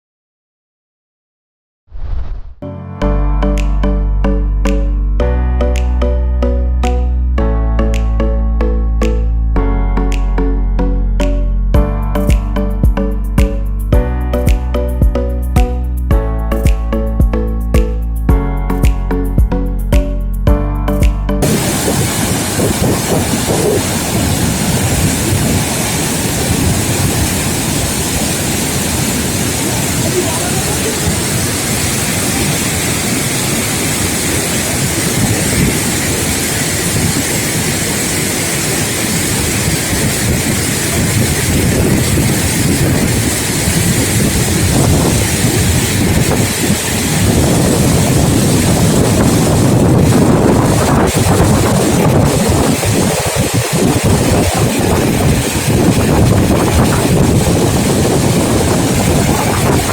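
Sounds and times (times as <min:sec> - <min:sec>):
low rumble: 0:01.9 - 0:05.6
waterfall roar: 0:21.4 - 0:59.9.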